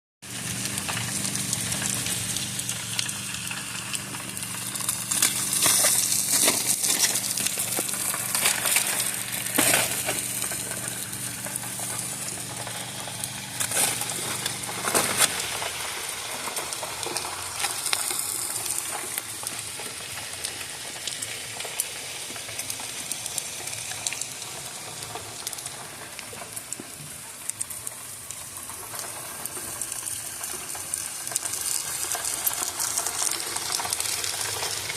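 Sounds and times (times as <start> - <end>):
meat sizzling on a grill: 0.2 - 34.9
low steady hum: 0.3 - 20.1.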